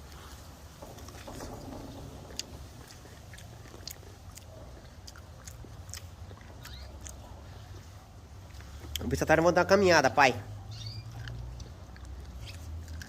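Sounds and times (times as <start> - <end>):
person chewing corn: 2.3 - 9.2, 11.0 - 13.0.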